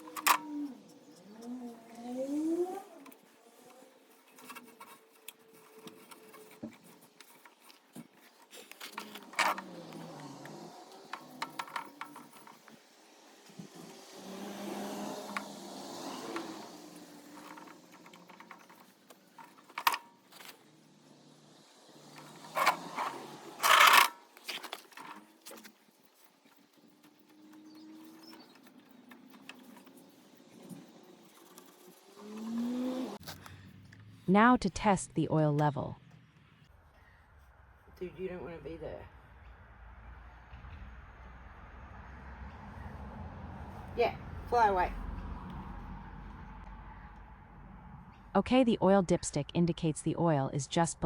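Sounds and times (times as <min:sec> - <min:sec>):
objects clinking and knocking: 0:11.0 - 0:12.8.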